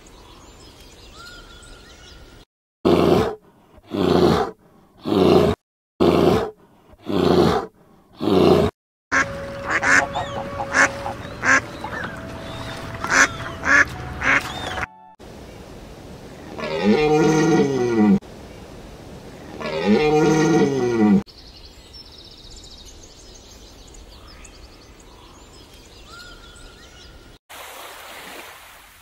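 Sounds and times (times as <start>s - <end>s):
bear calling: 8.2s - 14.9s
elk calling: 9.1s - 14.8s
geese honking: 9.1s - 14.9s.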